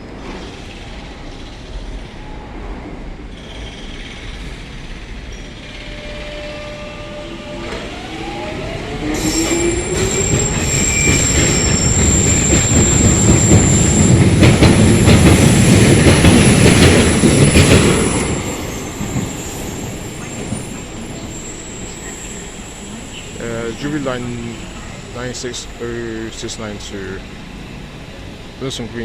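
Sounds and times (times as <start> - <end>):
train wheel rumble: 0.0 - 29.0
high-pitched wheel squeal: 5.3 - 14.2, 17.4 - 23.5.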